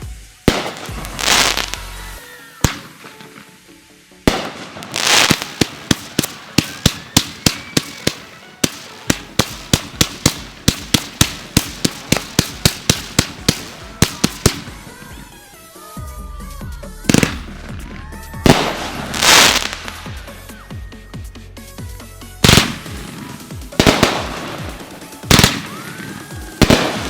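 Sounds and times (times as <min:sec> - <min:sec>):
fireworks bangs: 0:00.0 - 0:15.9, 0:17.0 - 0:20.6, 0:22.4 - 0:27.0
fireworks crackling burst: 0:00.0 - 0:27.0
music: 0:00.0 - 0:27.0.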